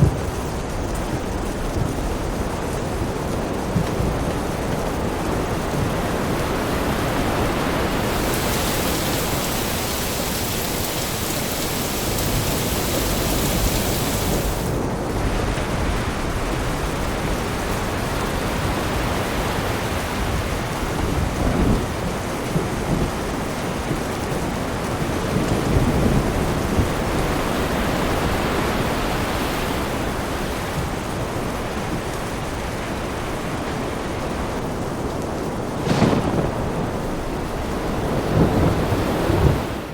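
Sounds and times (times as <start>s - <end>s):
low thunder rumble: 0.0s - 19.2s, 35.4s - 39.9s
heavy rain: 0.0s - 39.9s
hissy rain layer: 0.0s - 39.9s.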